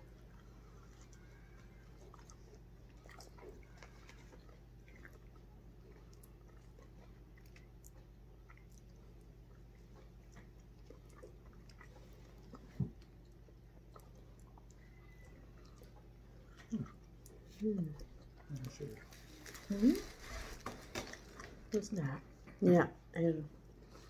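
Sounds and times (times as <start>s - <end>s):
person chewing: 0.0s - 21.7s
steady low hum: 0.0s - 24.0s.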